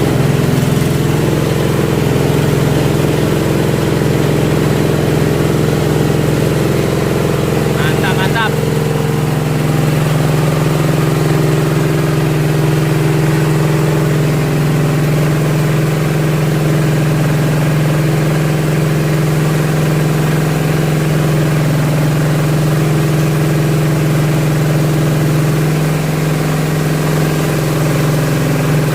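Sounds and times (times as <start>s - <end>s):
grinding mill humming: 0.0s - 28.9s.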